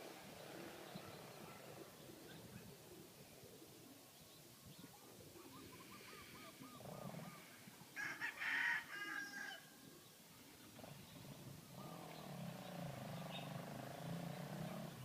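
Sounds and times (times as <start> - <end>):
soft bird calls: 0.0 - 7.9, 9.2 - 15.0
rooster crowing: 8.0 - 9.7.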